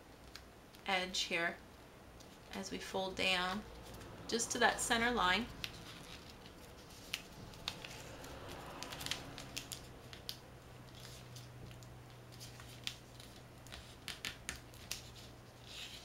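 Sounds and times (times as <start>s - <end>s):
paper being folded and creased: 5.5s - 16.0s.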